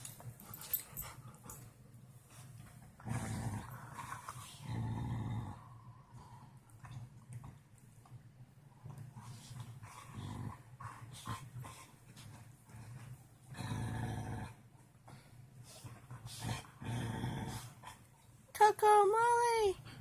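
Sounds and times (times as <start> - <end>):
dog growling in play: 2.8 - 7.6, 8.7 - 18.2.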